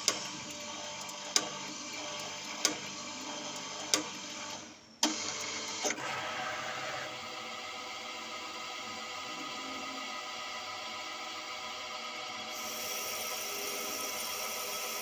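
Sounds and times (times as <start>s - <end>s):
lathe machine hum: 10.9s - 15.0s.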